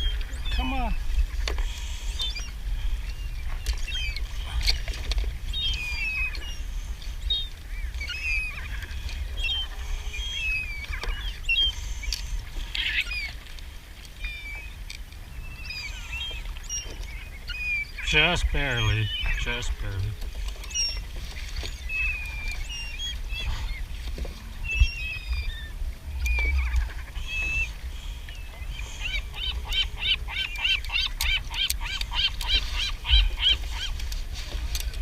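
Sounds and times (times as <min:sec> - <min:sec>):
high chirping bird calls: 0:14.2 - 0:23.8, 0:24.6 - 0:34.0
steady low rumble: 0:18.0 - 0:30.1.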